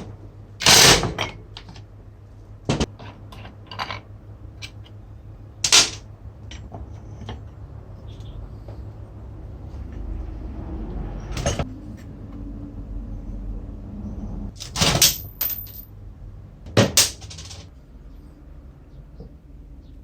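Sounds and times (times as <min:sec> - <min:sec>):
low steady rumble: 0:00.0 - 0:20.0
metal tools clanking: 0:14.6 - 0:15.9.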